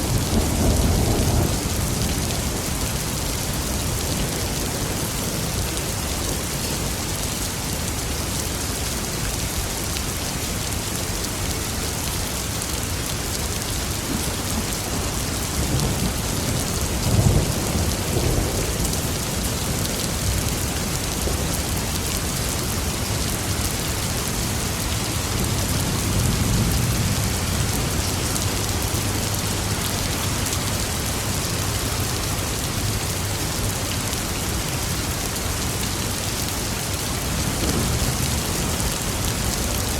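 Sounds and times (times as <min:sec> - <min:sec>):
heavy rain falling: 0:00.0 - 0:39.9
thunder rumbling: 0:37.2 - 0:39.9.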